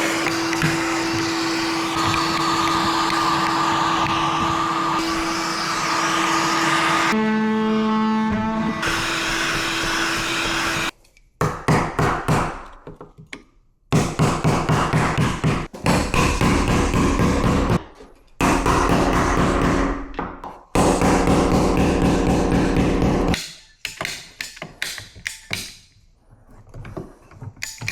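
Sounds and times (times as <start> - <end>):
power tool running in bursts: 0.0 - 7.3, 8.8 - 10.9.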